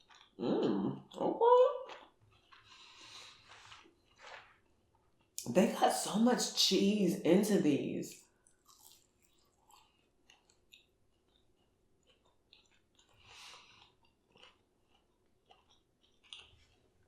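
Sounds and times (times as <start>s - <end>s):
mouth chewing wet clicks: 0.0s - 1.2s, 1.8s - 4.5s, 8.6s - 16.9s.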